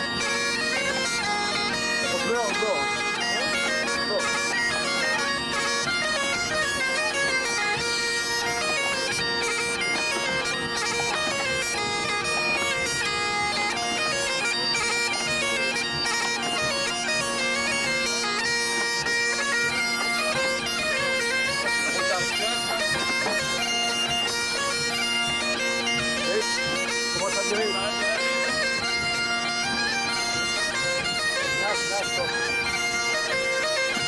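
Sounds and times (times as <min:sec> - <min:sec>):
bagpipe and oboe tune: 0:00.0 - 0:34.0
bagpipe drones: 0:00.0 - 0:34.0.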